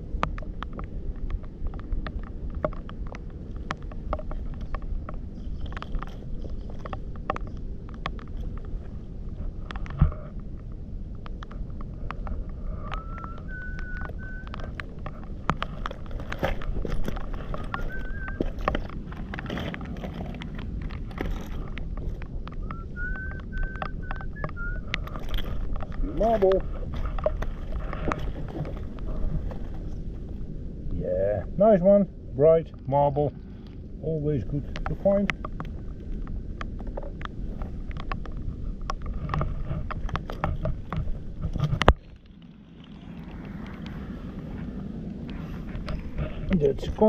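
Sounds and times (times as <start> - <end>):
stones clicking and scraping in mud: 0.0 - 30.6, 33.6 - 47.0
wind on microphone: 0.0 - 47.0
small clicks and taps: 0.1 - 8.9.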